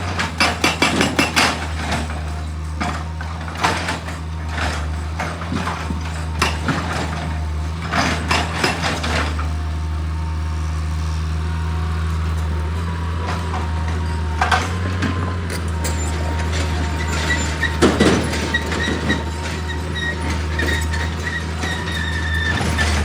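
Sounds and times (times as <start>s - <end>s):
heavy machine engine humming: 0.0s - 23.0s
metallic clanks and rattles: 14.4s - 23.0s.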